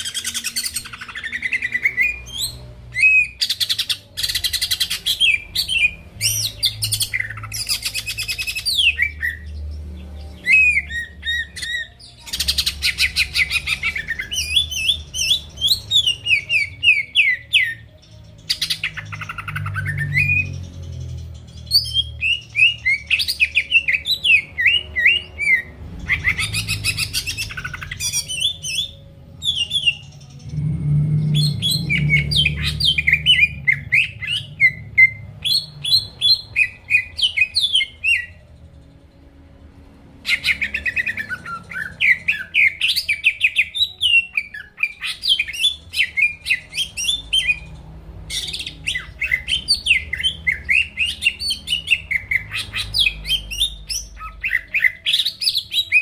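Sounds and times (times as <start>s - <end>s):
bird singing whistled notes: 10.3s - 38.4s, 40.3s - 47.7s, 48.3s - 56.0s.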